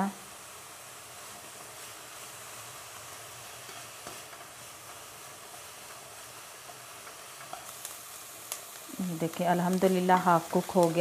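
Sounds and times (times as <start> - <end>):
peppers sizzling in oil: 0.0 - 11.0
spatula stirring in wok: 0.3 - 11.0.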